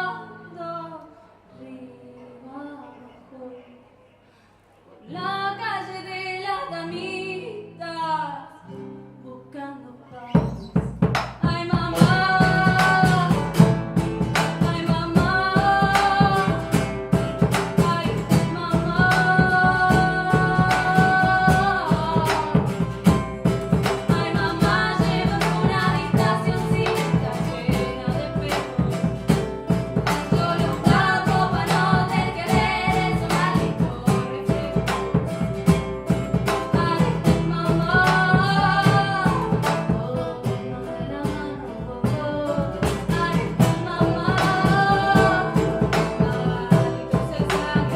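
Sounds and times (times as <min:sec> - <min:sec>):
plucked guitar: 0:05.0 - 0:47.9
woman singing long notes: 0:17.8 - 0:22.8.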